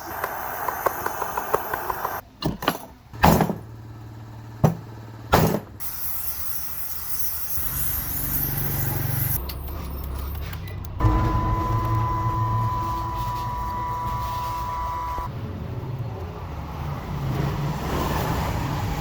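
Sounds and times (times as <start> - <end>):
low motor hum: 11.0 - 17.0.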